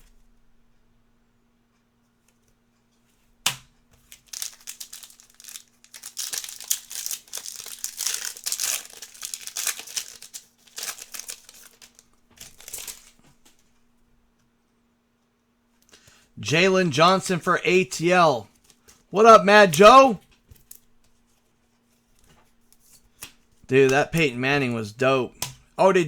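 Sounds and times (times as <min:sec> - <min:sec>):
wrapper crinkling: 0:04.0 - 0:13.2
wrapper tearing snap: 0:04.1 - 0:13.2.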